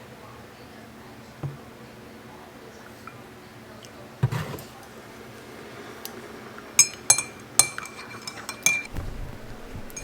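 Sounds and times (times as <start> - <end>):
soft thump: 1.4 - 1.6, 8.9 - 9.9
spoon clinking against mug: 6.8 - 8.9.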